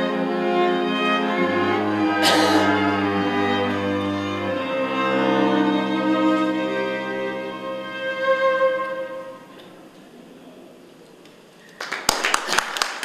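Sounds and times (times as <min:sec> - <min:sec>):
violin: 0:00.0 - 0:10.0
cello: 0:00.0 - 0:10.2.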